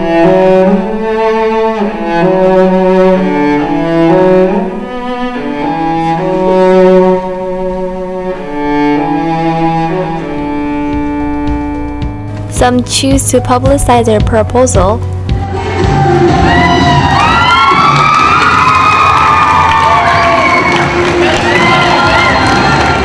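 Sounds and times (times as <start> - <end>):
bowed strings with cello melody: 0.0 - 13.7.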